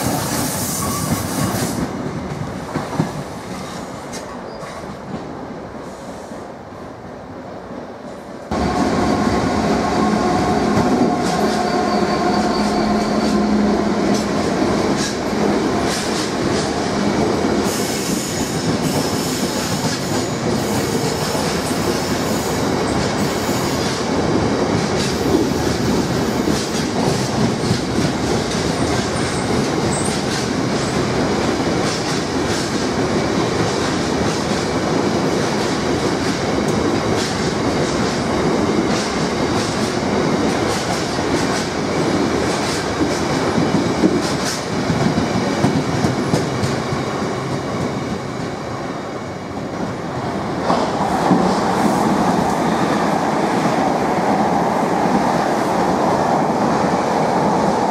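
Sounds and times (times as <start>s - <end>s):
clickety-clack over rail joints: 0.0s - 5.3s, 14.1s - 16.8s, 17.6s - 24.1s, 24.7s - 48.2s.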